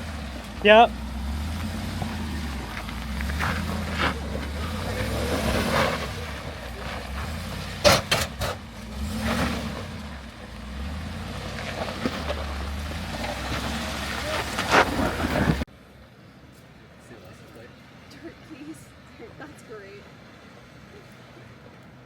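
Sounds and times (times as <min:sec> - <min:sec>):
vehicle engine at low revs: 0:00.0 - 0:15.7.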